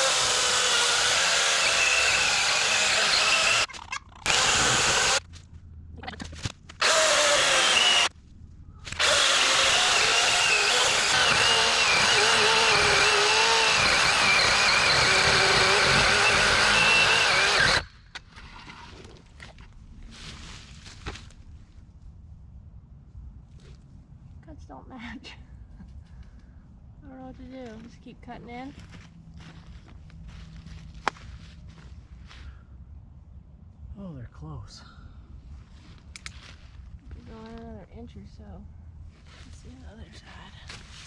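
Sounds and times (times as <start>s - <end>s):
electric chainsaw cutting wood: 0.0s - 3.7s, 4.3s - 5.2s, 6.8s - 8.1s, 8.9s - 17.9s.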